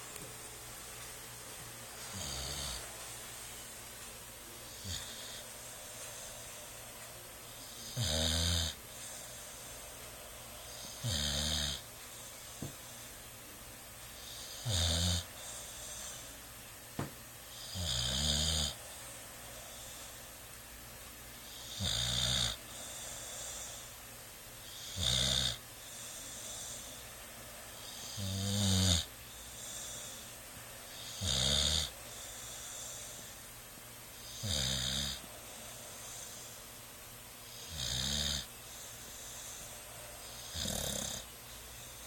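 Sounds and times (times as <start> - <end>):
dog snoring: 2.0 - 3.0, 4.7 - 6.5, 7.6 - 9.8, 10.6 - 11.9, 14.2 - 16.3, 17.5 - 18.8, 21.4 - 23.9, 24.6 - 27.0, 27.8 - 30.2, 30.9 - 33.4, 34.2 - 36.6, 37.5 - 42.0.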